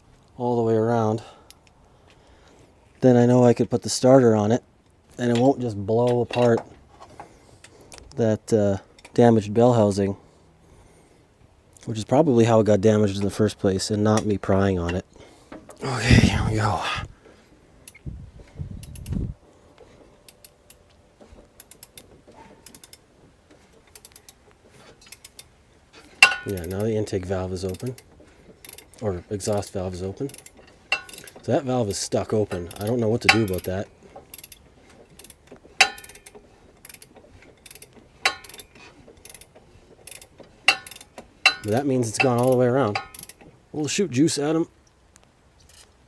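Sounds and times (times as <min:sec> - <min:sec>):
ratchet pawl clicks: 0:18.8 - 0:19.2, 0:21.6 - 0:23.0, 0:23.8 - 0:24.4, 0:25.0 - 0:25.5, 0:26.2 - 0:26.9, 0:27.7 - 0:31.4, 0:32.5 - 0:43.5, 0:45.6 - 0:45.9
socket ratchet clicking: 0:34.3 - 0:39.5, 0:40.1 - 0:43.4.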